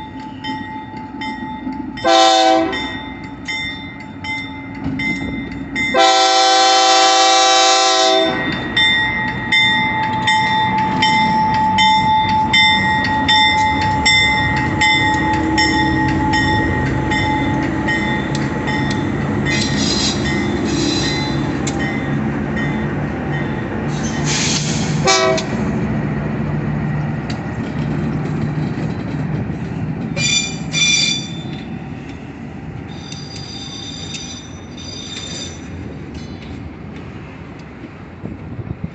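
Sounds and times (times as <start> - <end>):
train rumbling past: 0.0 - 38.9
train horn blast: 2.0 - 3.0, 5.9 - 8.5, 25.0 - 25.6
wheels clicking over rail joints: 8.1 - 25.6, 26.8 - 38.0
high wheel squeals: 19.4 - 21.5, 30.2 - 31.7, 32.9 - 36.4.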